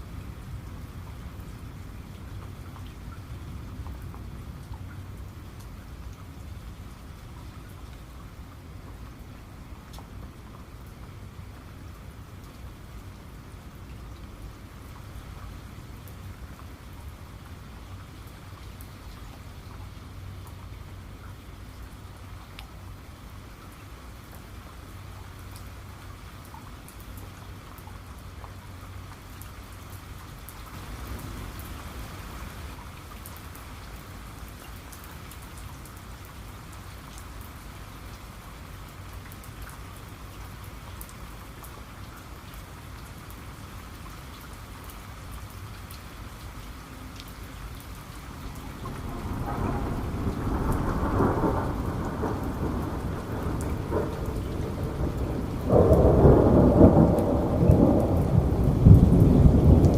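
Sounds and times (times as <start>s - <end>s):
rain falling: 0.0s - 59.9s
thunder rumbling: 48.4s - 59.9s.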